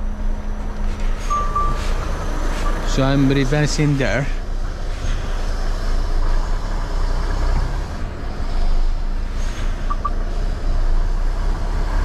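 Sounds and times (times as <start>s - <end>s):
diesel engine rumbling: 0.0s - 12.0s
short beeps: 1.2s - 3.0s, 9.9s - 10.2s.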